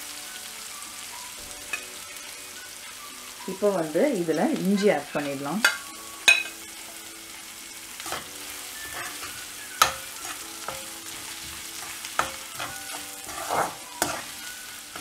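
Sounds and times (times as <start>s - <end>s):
food sizzling in hot oil: 0.0s - 15.0s
spatula knocking and scraping pan: 8.0s - 15.0s.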